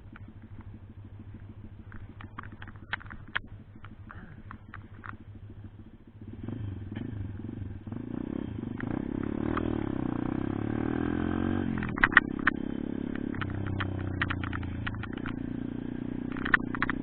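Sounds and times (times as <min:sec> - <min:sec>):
motorcycle engine accelerating: 0:00.0 - 0:17.0
sharp clicks: 0:00.1 - 0:05.3, 0:11.8 - 0:15.6, 0:16.2 - 0:17.0.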